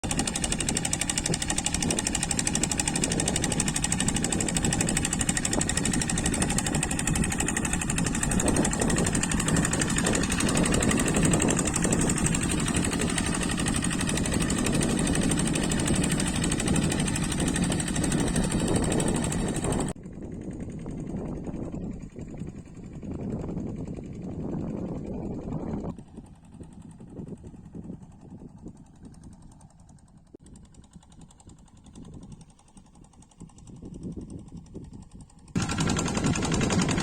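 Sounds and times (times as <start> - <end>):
diesel engine clattering: 0.0 - 20.0, 35.5 - 37.0.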